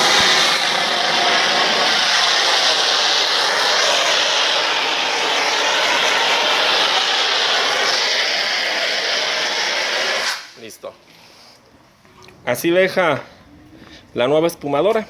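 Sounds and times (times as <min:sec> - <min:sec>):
foam machine spraying hiss: 0:00.0 - 0:10.8.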